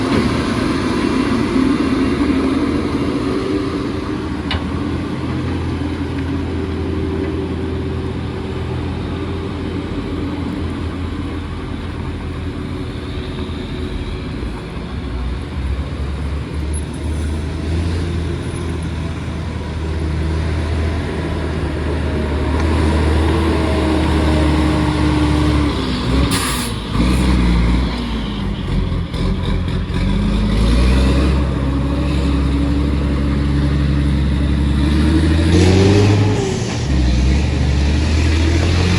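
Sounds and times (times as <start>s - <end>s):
truck diesel engine rumbling: 0.0s - 38.9s
burst of hiss: 26.3s - 26.9s.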